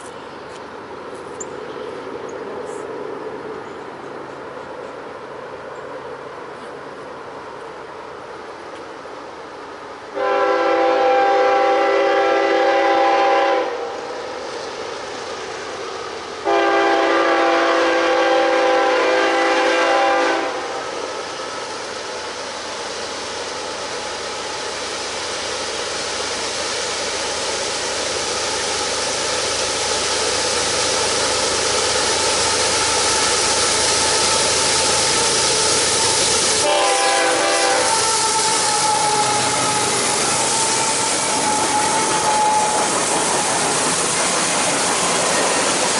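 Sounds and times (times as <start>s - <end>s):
train passing: 0.0s - 45.9s
locomotive horn blasts: 10.2s - 13.9s, 16.4s - 20.8s, 36.6s - 42.9s.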